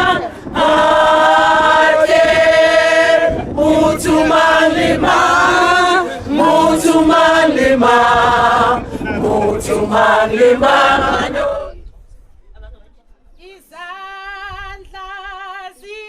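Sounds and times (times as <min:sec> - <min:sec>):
choir singing in harmony: 0:00.0 - 0:11.9.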